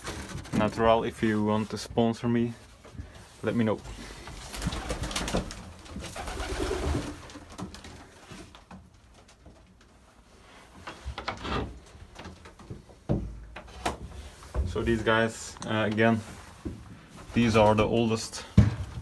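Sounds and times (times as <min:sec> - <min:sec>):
knocks and rustling: 0:10.8 - 0:15.2, 0:15.8 - 0:19.0.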